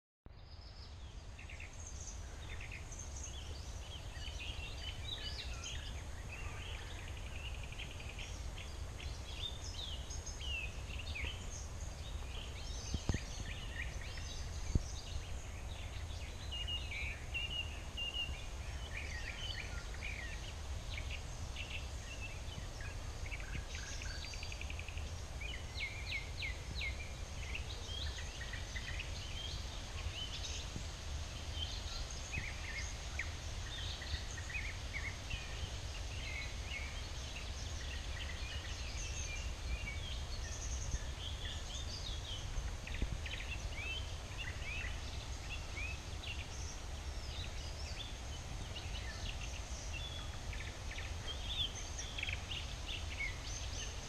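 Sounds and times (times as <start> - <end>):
small birds chirping: 0.3 - 54.0.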